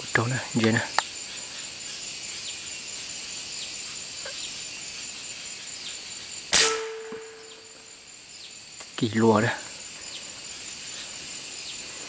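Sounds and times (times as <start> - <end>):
high insect buzz: 0.0 - 12.0
loud gunshot: 6.6 - 7.6.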